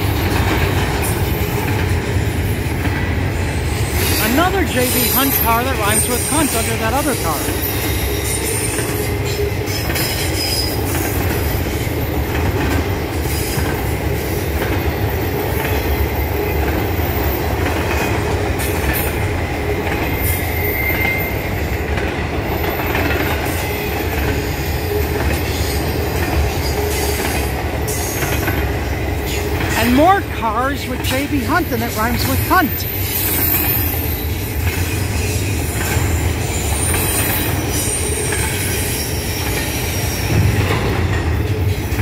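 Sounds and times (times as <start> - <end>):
freight train wheels rumbling on rail: 0.0 - 42.0
faint high wheel squeal: 20.2 - 21.4.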